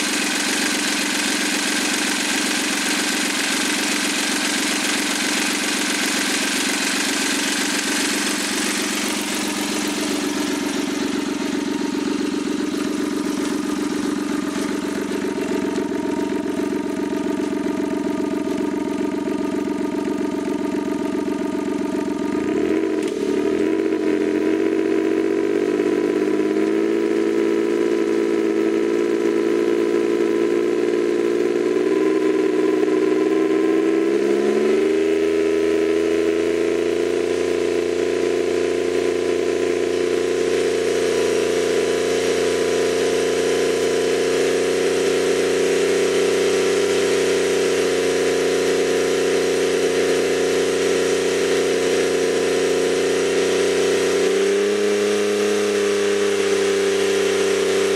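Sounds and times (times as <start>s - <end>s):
turbo engine running: 0.0s - 57.9s.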